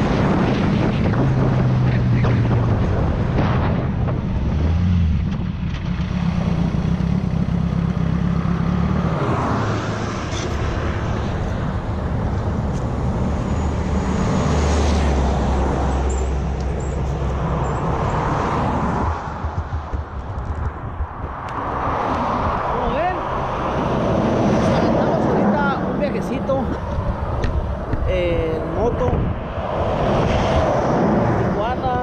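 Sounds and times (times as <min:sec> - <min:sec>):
wind rushing over microphone: 0:00.0 - 0:07.0, 0:08.3 - 0:32.0
motorcycle engine running: 0:05.1 - 0:09.1.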